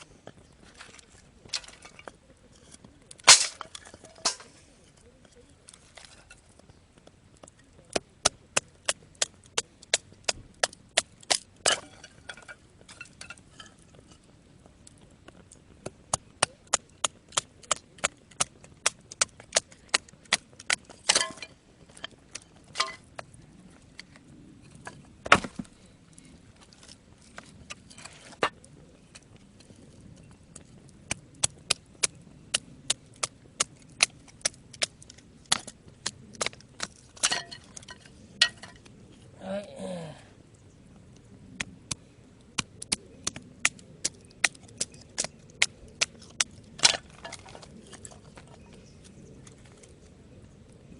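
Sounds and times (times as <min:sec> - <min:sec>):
firewood splitting knocks: 0:03.1 - 0:04.5, 0:15.8 - 0:22.1, 0:24.8 - 0:25.8.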